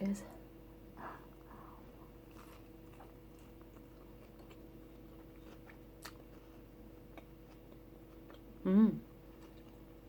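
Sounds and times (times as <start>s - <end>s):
chewing food: 1.3s - 8.6s, 9.2s - 10.0s.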